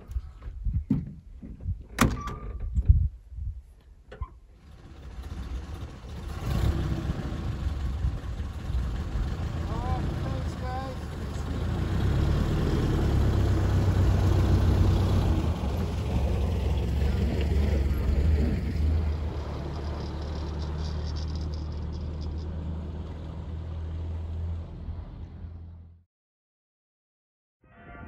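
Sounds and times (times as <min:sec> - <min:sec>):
car engine running: 0:04.6 - 0:23.0.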